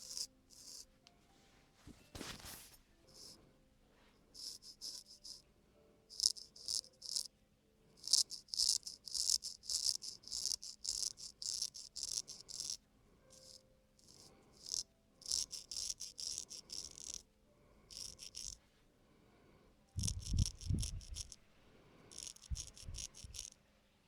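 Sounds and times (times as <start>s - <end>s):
razor blade scraping skin: 6.2s - 7.3s, 8.0s - 12.8s, 13.4s - 17.2s, 17.9s - 18.6s, 20.0s - 21.4s, 22.1s - 23.6s.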